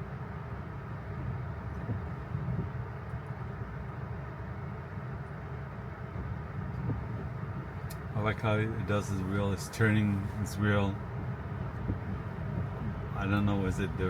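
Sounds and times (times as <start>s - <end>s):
tyres rolling on wet pavement: 7.1s - 14.0s.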